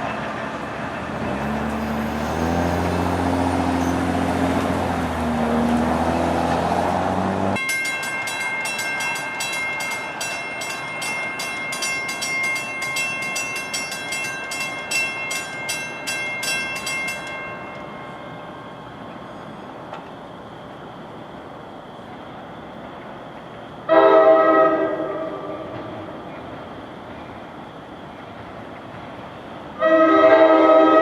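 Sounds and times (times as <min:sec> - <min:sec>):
train engine drone: 0:00.0 - 0:31.0
bell ringing rapidly: 0:07.6 - 0:17.6.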